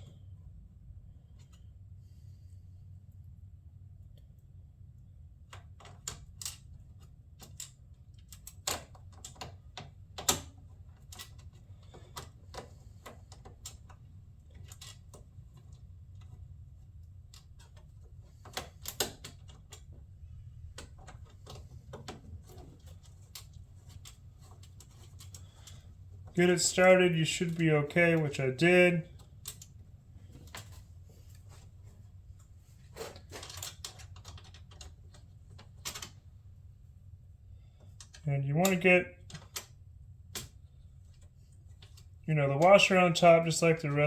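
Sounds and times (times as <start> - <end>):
low steady hum: 0.0 - 44.0
light clicks of bolt and washer: 5.5 - 16.4.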